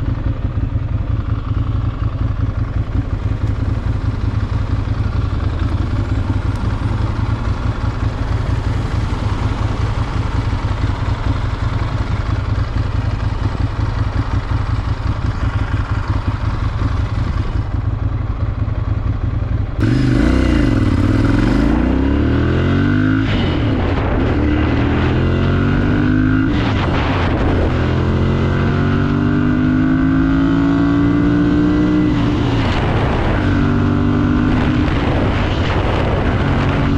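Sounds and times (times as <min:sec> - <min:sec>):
motorcycle engine revving: 0:00.0 - 0:36.9.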